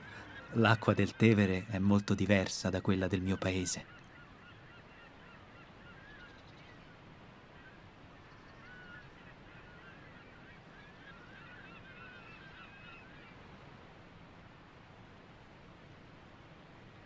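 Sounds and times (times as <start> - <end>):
birds chirping: 0.0 - 7.0.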